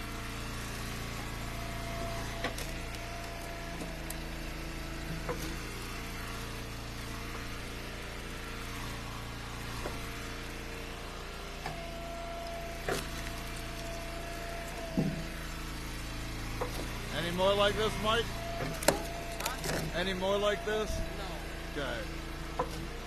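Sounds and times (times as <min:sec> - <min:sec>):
wood splitter engine running: 0:00.0 - 0:23.0
firewood cracking: 0:02.1 - 0:06.6, 0:11.7 - 0:22.4
high whine: 0:17.1 - 0:22.1.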